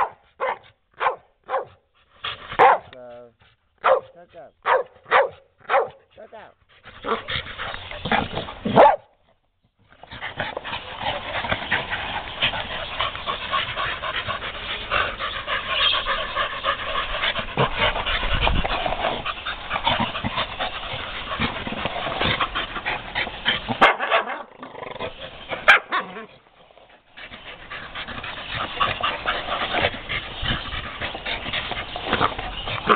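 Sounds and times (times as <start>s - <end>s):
dogs growling and whining: 9.9s - 32.9s.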